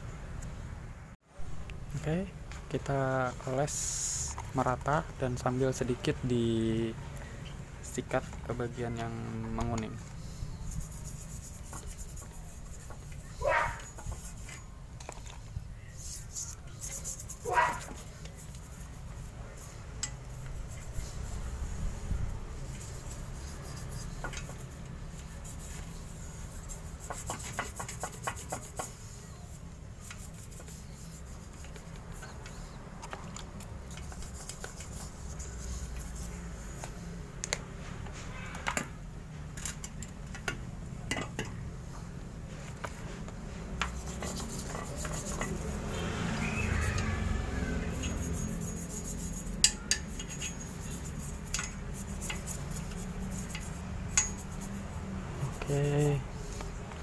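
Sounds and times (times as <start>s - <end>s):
toothbrush scrubbing metal pipe: 7.8s - 37.2s, 42.6s - 56.8s.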